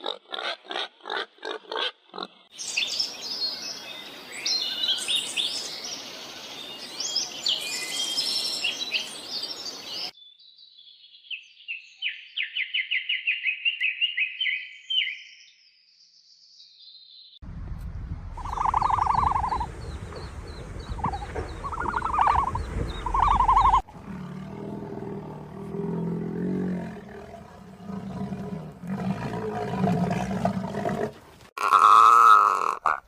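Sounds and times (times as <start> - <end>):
low rumble: 17.4 - 24.6
bird trill: 18.4 - 23.9
low growling calls: 18.4 - 33.0
loud pitched animal calls: 21.0 - 24.3.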